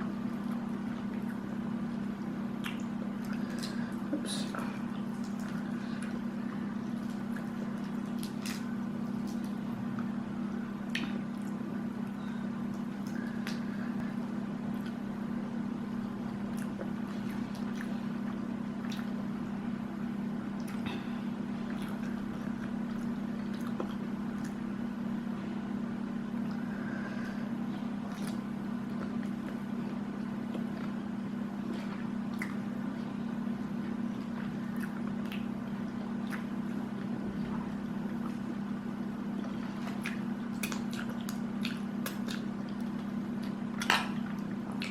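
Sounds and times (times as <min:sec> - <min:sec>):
steady low hum: 0:00.0 - 0:44.9
chewing and wet squishing: 0:00.1 - 0:15.3, 0:15.9 - 0:24.8, 0:26.3 - 0:44.9.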